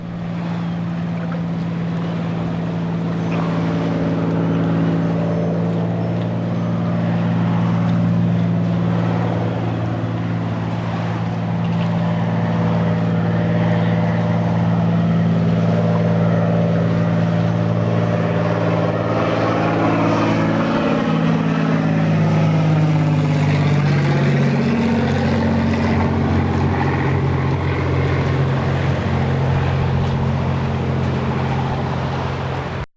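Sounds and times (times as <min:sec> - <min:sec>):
propeller plane flying past: 0:00.0 - 0:32.9.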